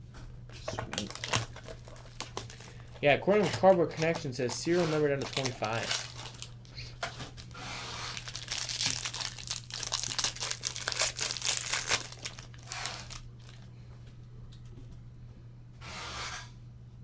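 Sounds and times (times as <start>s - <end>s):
wrapper tearing and crinkling: 0.7s - 13.7s.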